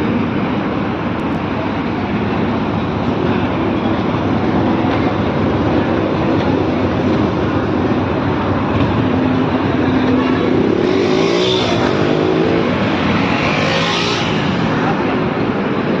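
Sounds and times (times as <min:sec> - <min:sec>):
motorcycle engine revving: 0:09.5 - 0:15.3.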